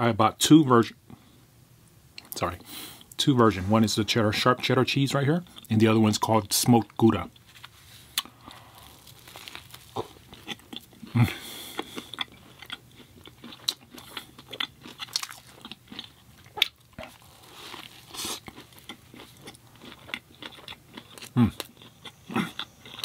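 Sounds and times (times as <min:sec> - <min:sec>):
wet chewing: 0:08.1 - 0:23.0.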